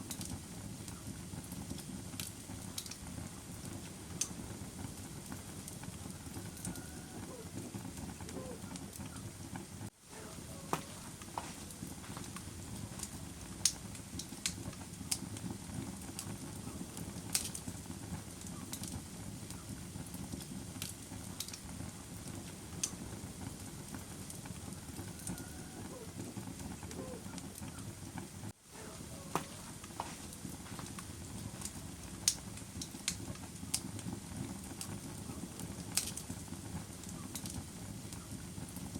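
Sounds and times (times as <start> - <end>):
campfire flames rushing: 0.0 - 38.9
fire popping and crackling: 0.0 - 38.9.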